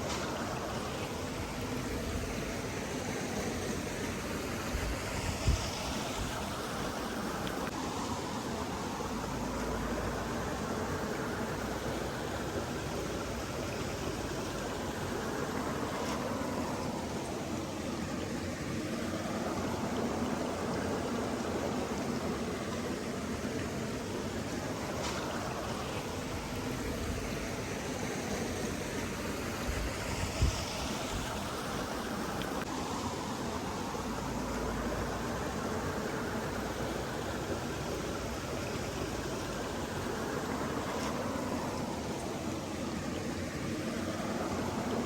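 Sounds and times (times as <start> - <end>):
stream water rushing: 0.0 - 45.0.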